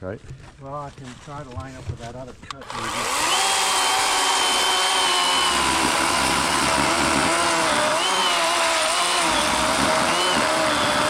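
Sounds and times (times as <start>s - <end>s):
electric chainsaw cutting log: 2.6s - 11.0s.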